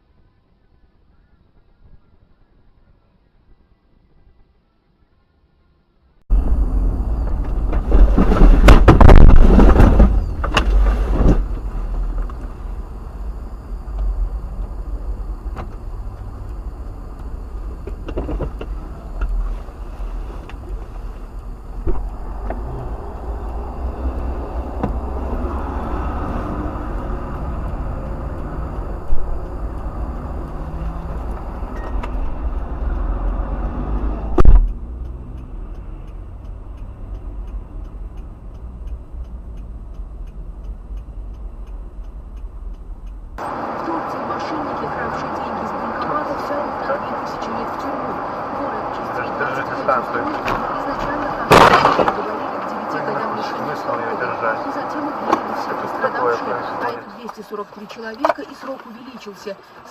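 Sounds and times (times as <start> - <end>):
road and engine rumble: 0.0 - 59.9.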